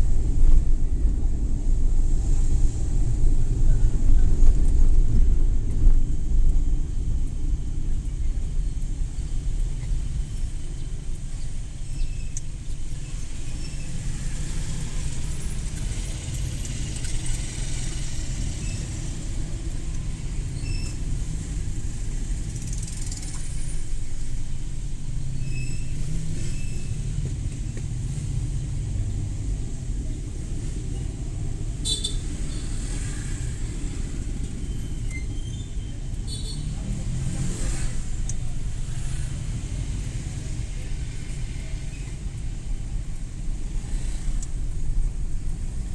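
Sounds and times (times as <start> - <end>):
van engine and road rumble: 0.0 - 45.9.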